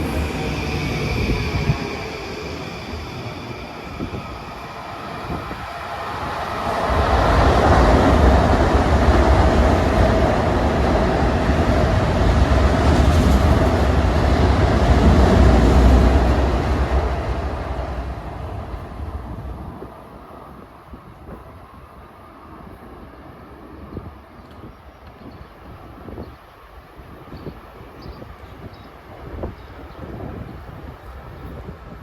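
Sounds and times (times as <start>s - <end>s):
train wheels rumbling on rail: 0.0s - 21.9s.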